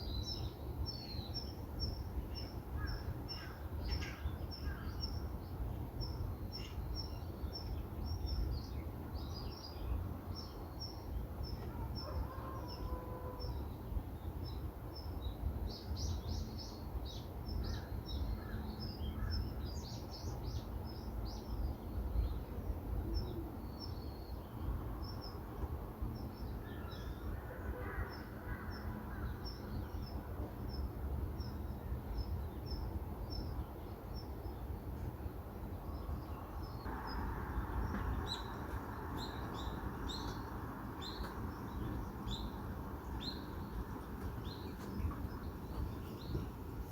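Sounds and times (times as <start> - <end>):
small birds chirping: 36.0 - 46.9.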